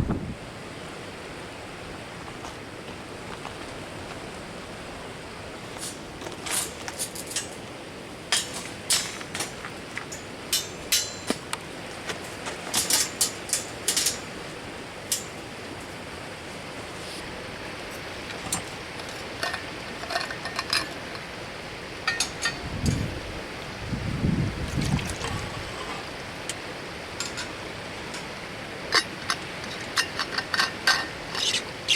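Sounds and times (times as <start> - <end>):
river rushing: 0.0 - 31.9
sharp clinks and knocks: 8.3 - 11.5, 12.7 - 14.4, 18.3 - 21.3, 22.0 - 23.1.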